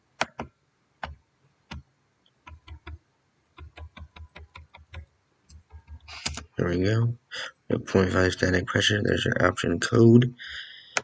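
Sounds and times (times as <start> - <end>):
computer keyboard keys clicking: 0.2 - 1.8, 2.4 - 3.0, 3.6 - 6.5.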